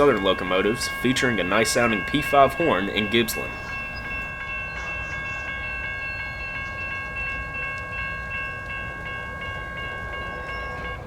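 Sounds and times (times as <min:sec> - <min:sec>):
crossing bell ringing: 0:00.0 - 0:11.0
low rumble of train: 0:00.0 - 0:11.0.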